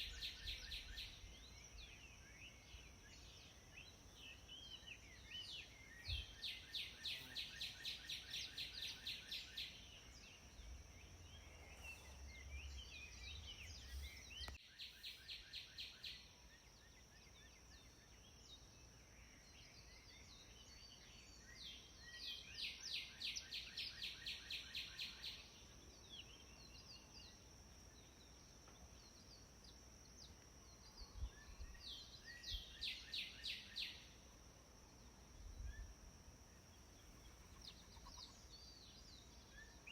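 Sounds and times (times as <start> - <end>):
songbird trilling: 37.6 - 38.8.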